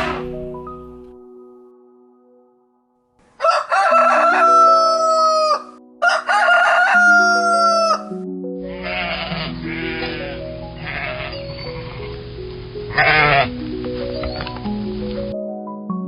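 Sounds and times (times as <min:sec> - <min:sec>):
soft background music: 0:00.0 - 0:16.0
rooster crowing: 0:03.4 - 0:08.1.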